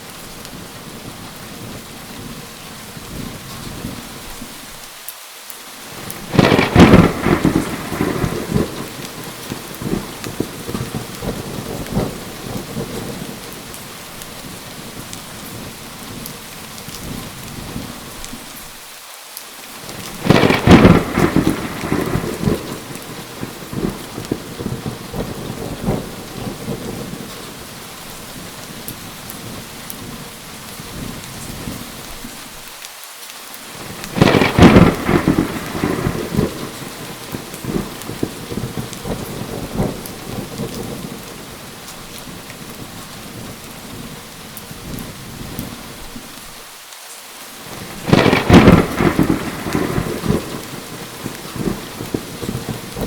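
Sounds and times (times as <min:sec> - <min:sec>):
steady rain: 0:00.0 - 0:53.0
rolling thunder: 0:06.0 - 0:18.1, 0:19.9 - 0:32.0, 0:33.8 - 0:46.3, 0:47.7 - 0:53.0
thunderclaps: 0:06.0 - 0:18.3, 0:19.8 - 0:32.4, 0:33.8 - 0:46.3, 0:47.6 - 0:53.0.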